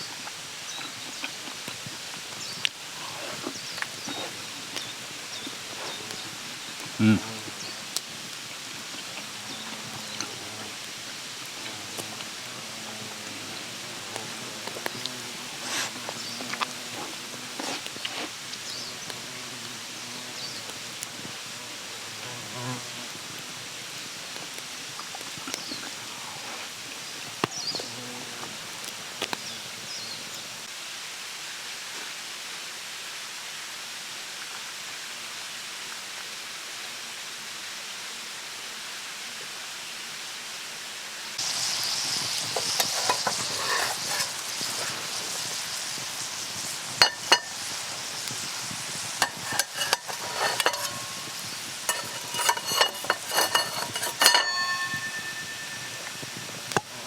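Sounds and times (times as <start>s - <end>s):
food sizzling in a pan: 0.0s - 36.8s, 39.0s - 57.0s
outdoor background hiss: 0.0s - 57.0s
metal utensil clinking on pan: 42.6s - 44.4s, 47.0s - 47.7s, 49.2s - 56.9s.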